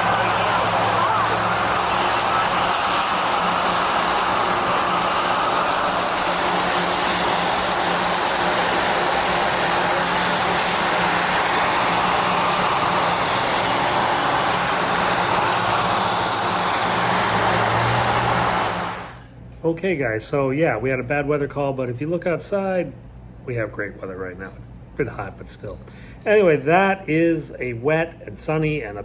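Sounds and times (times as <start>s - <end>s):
vehicle running noise: 0.0s - 19.2s.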